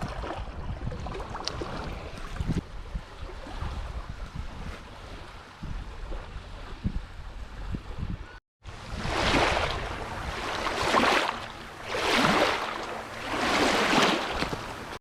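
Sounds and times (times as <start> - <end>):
wind rumbling on microphone: 0.0 - 15.0
sea waves washing onto beach: 8.7 - 15.0.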